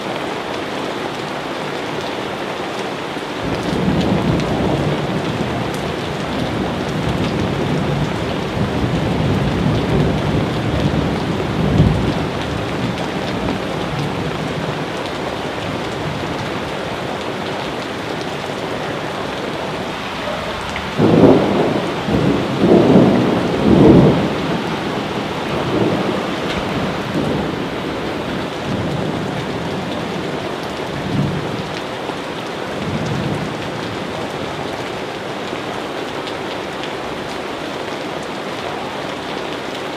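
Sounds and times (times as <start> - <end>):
steady rain: 0.0 - 39.9
thunder rumbling: 3.4 - 31.7.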